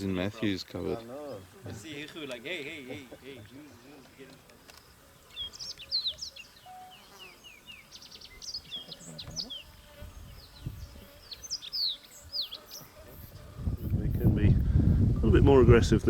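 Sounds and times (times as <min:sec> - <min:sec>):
birds chirping and whistling: 0:04.8 - 0:14.3.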